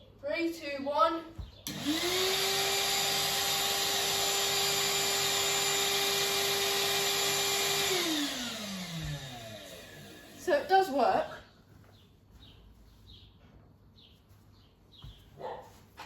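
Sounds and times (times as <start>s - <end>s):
wet vacuum motor whining: 1.7s - 10.7s.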